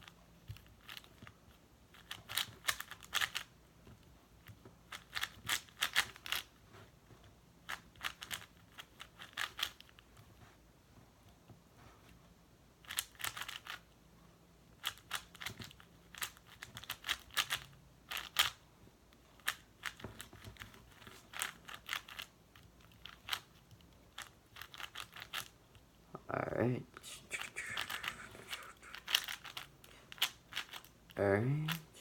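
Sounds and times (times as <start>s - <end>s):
speed cube plastic clicks: 1.9s - 3.5s, 4.9s - 6.5s, 7.7s - 10.0s, 12.8s - 13.8s, 14.8s - 18.6s, 19.3s - 25.5s, 28.9s - 31.0s.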